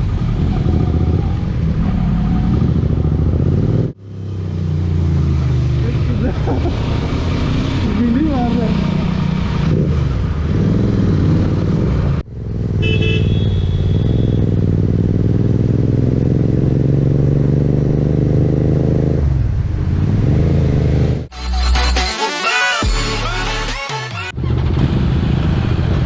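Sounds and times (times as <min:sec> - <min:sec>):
motorcycle engine revving: 0:00.0 - 0:21.3, 0:24.4 - 0:26.0
vehicle horn toot: 0:12.8 - 0:14.6.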